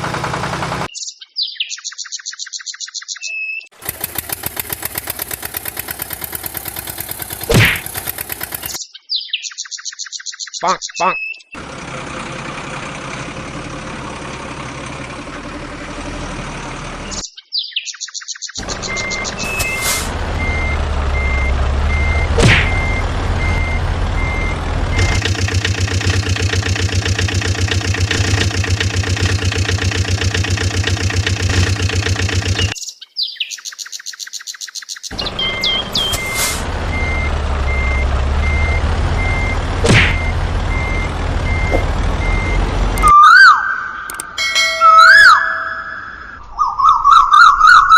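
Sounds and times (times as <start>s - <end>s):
fast rattling: 3.8s - 8.8s, 25.0s - 32.8s
low motor hum: 3.8s - 8.8s, 18.6s - 32.8s, 35.1s - 43.1s
toy reversing beeps: 18.8s - 25.3s, 35.2s - 43.2s, 44.1s - 46.4s.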